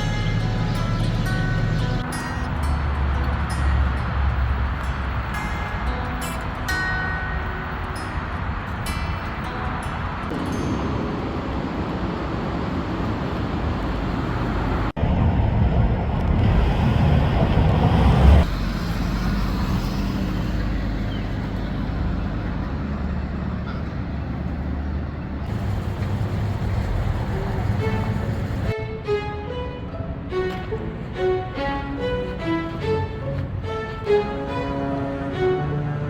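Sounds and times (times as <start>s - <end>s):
passing cars rumbling: 0.0s - 36.0s.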